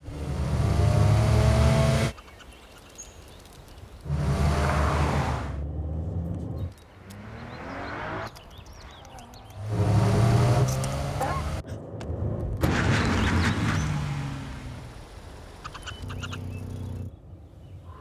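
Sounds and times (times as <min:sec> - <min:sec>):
vehicles driving by: 0:00.0 - 0:17.4
rising engine sound: 0:04.1 - 0:17.1.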